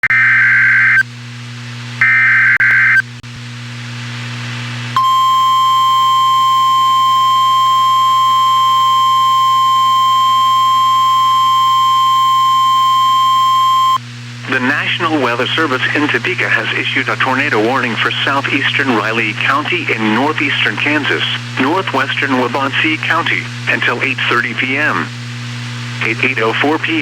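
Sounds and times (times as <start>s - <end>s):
high-pitched alarm tone: 5.0s - 14.0s.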